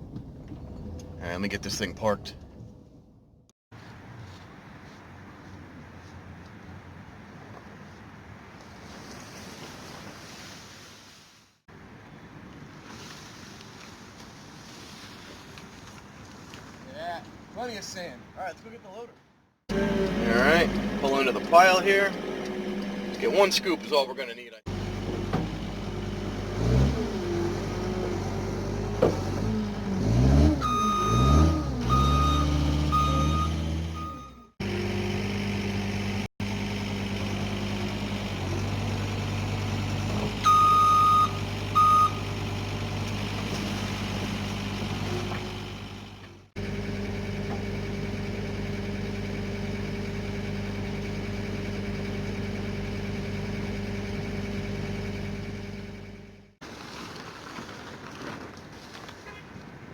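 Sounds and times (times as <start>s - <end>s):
loader diesel engine revving: 19.7s - 24.1s, 24.7s - 56.6s
reversing alarm beeps: 30.6s - 34.5s, 40.4s - 42.2s.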